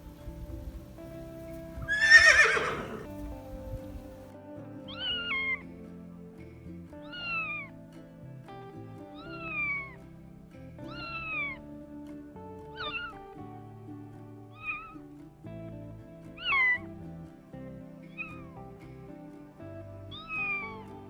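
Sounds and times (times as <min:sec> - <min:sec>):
background music held notes: 0:00.0 - 0:21.0
cat meowing: 0:01.8 - 0:03.5
animal calling high falling calls: 0:01.9 - 0:03.1.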